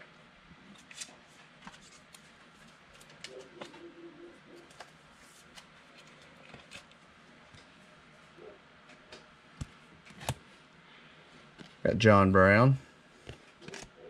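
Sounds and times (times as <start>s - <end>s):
cards being flipped: 9.6s - 10.4s.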